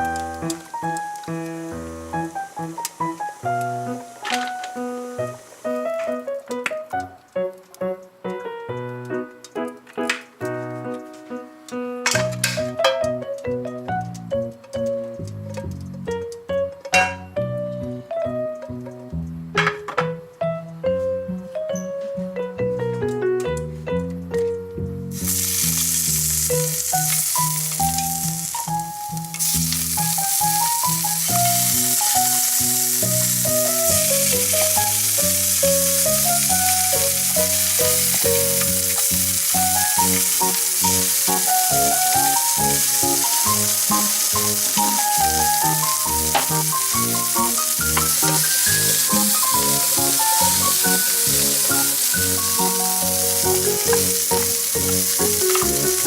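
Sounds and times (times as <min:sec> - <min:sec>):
food sizzling in a pan: 0:00.0 - 0:06.3, 0:25.1 - 0:56.0
background music: 0:00.0 - 0:56.0.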